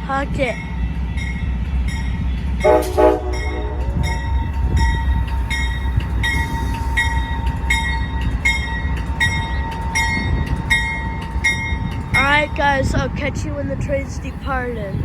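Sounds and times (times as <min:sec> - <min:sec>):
diesel train engine rumble: 0:00.0 - 0:15.0
bell ringing: 0:01.9 - 0:12.3
train horn toot: 0:02.6 - 0:04.5.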